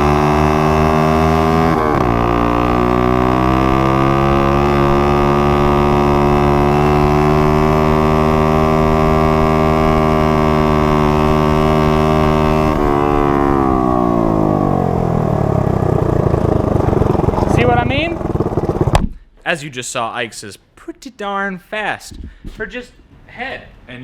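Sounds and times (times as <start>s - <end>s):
mini bike engine revving: 0.0s - 19.0s.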